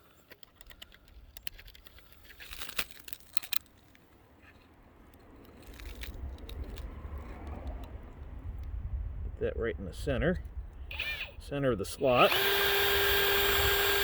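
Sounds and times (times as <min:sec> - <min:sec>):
hand drill clicks and rattles: 0:10.9 - 0:14.0.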